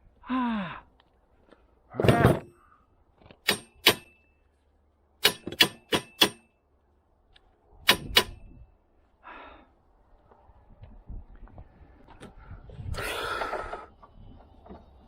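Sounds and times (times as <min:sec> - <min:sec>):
metal-on-metal strikes: 0:03.4 - 0:04.3, 0:05.2 - 0:06.6, 0:07.8 - 0:08.6.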